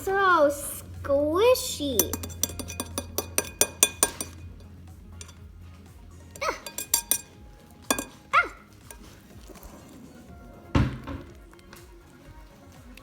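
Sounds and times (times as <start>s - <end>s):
whisk clinking against bowl: 2.0s - 5.4s, 6.4s - 9.6s.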